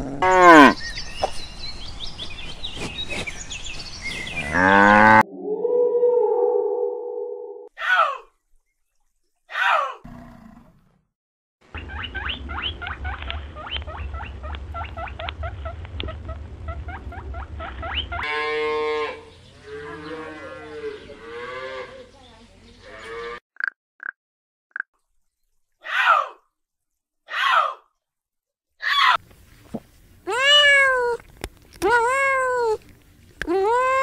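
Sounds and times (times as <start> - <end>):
low wavering mooing call: 4.5 - 7.7
low rumble: 12.4 - 18.2.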